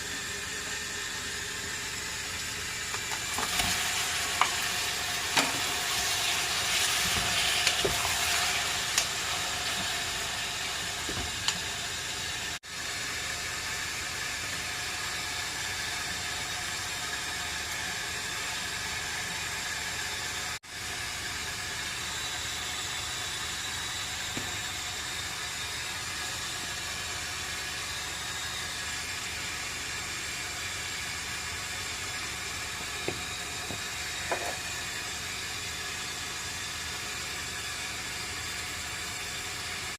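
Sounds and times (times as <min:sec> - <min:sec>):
meat sizzling in a pan: 0:02.8 - 0:18.8.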